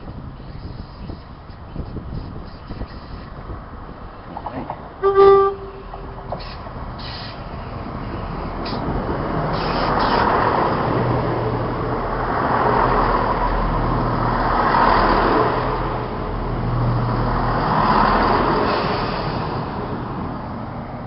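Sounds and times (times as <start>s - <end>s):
diesel train running past: 3.5s - 21.0s.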